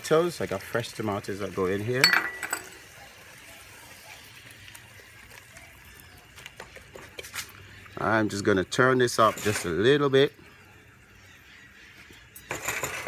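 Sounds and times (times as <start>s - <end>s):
vegetables sizzling in oil: 0.0s - 2.0s
wooden spoon scraping a pot: 9.1s - 9.9s.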